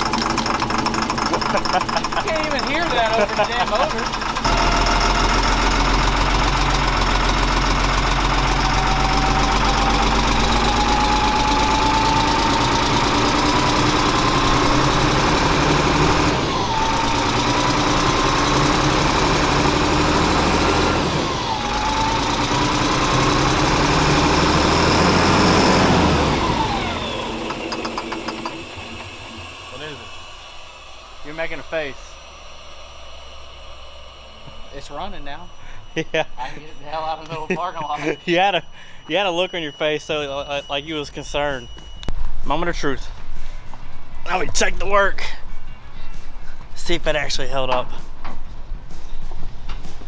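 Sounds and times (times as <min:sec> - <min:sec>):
diesel truck engine running: 0:00.0 - 0:36.1
whine rising in pitch: 0:02.2 - 0:43.3.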